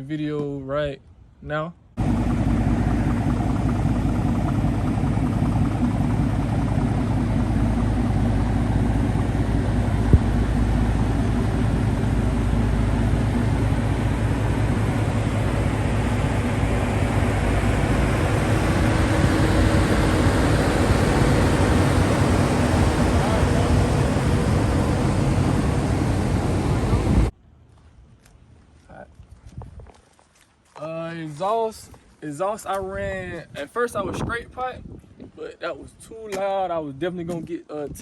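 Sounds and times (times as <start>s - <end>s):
vehicle engine idling: 2.0s - 27.3s.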